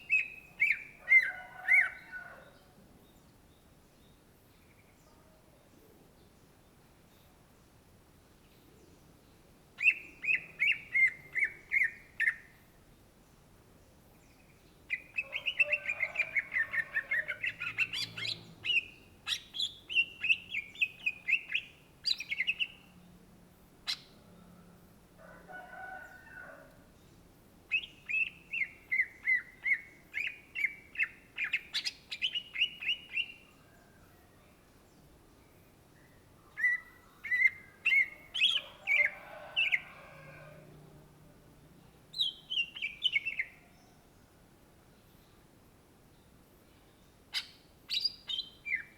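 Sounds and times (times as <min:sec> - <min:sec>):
bird chattering song: 0:09.8 - 0:12.5, 0:14.9 - 0:22.9, 0:27.7 - 0:33.5, 0:36.6 - 0:39.8, 0:42.1 - 0:43.7, 0:47.3 - 0:48.9.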